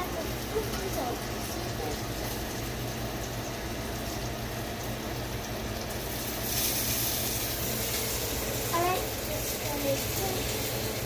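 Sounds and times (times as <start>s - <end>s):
patties sizzling in a skillet: 0.0s - 11.0s.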